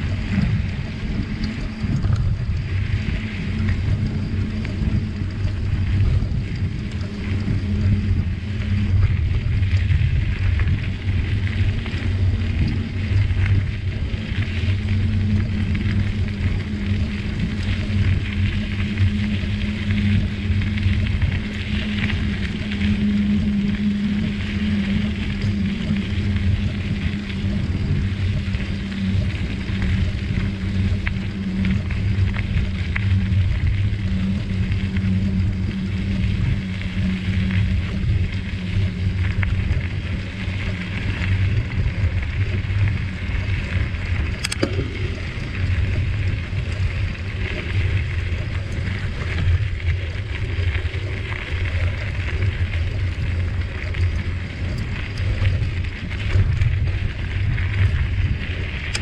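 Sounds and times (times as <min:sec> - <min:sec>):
bicycle tyres rolling on trail: 0:00.0 - 0:59.0
wind on microphone: 0:00.0 - 0:59.0
sharp click: 0:44.4 - 0:44.8.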